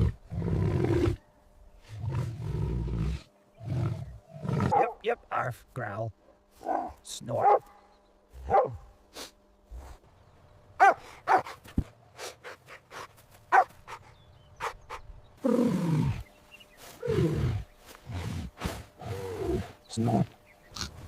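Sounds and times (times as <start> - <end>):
dog barking: 4.7 - 5.0, 6.6 - 7.8, 8.5 - 8.8, 10.8 - 11.6, 13.5 - 13.7.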